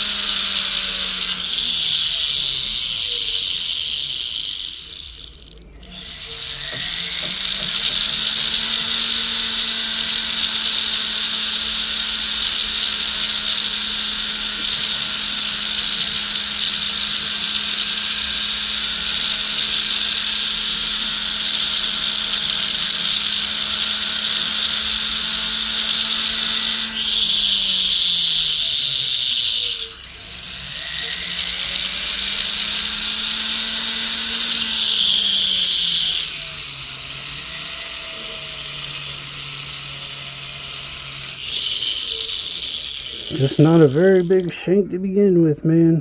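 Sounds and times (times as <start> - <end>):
rotary tool whirring: 0.0 - 44.8.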